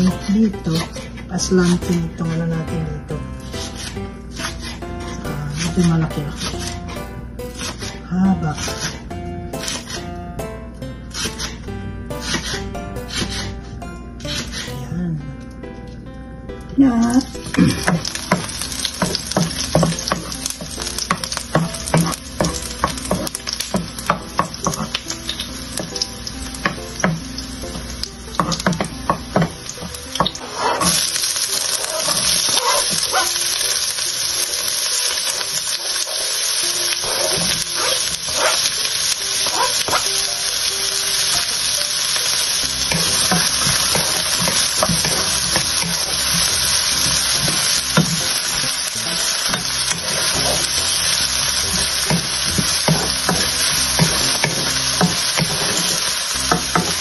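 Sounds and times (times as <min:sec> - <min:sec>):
onion frying loudly: 0:00.0 - 0:14.9, 0:16.6 - 0:57.0
garlic frying in oil: 0:16.9 - 0:57.0.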